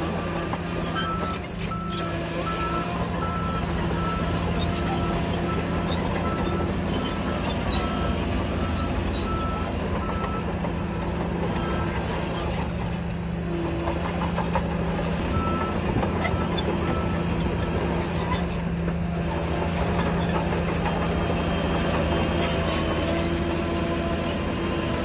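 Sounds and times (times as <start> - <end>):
heavy diesel machinery running: 0.0 - 25.0
reversing alarm beeping: 1.0 - 12.1, 15.2 - 18.0.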